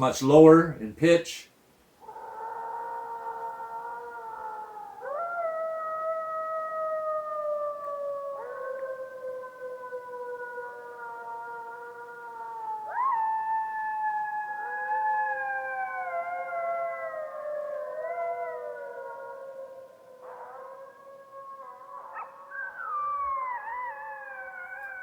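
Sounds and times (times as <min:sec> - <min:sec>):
wolves howling: 0:02.0 - 0:25.0.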